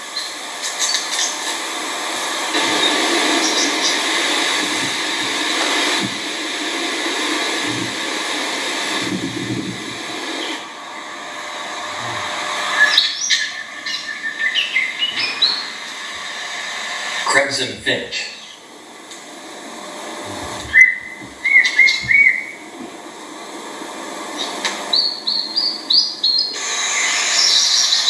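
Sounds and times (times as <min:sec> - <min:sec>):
steady background hiss: 0:00.4 - 0:27.9
finches chirping: 0:02.6 - 0:16.8, 0:20.2 - 0:22.7, 0:24.4 - 0:28.0.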